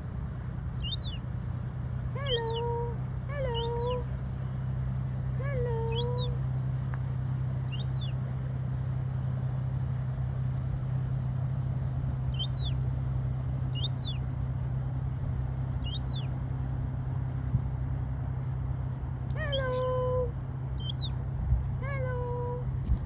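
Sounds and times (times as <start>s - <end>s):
steady low hum: 0.0s - 23.0s
high-pitched bird chirps: 0.8s - 1.2s, 2.2s - 2.7s, 3.5s - 4.0s, 5.8s - 6.4s, 7.7s - 8.2s, 12.3s - 12.8s, 13.7s - 14.2s, 15.8s - 16.3s, 19.4s - 19.8s, 20.8s - 21.2s.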